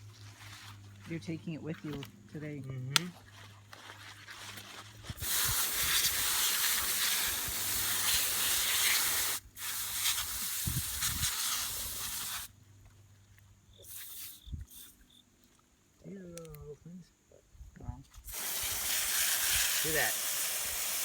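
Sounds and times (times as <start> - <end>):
garden hose nozzle hissing: 5.2 - 12.6, 13.7 - 15.2, 18.2 - 21.0.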